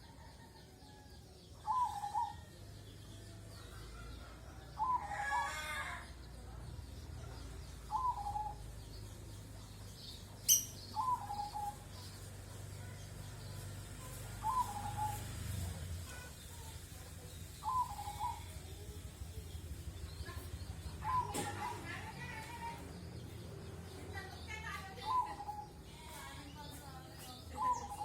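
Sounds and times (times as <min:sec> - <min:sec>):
bird calling: 0:10.5 - 0:11.8.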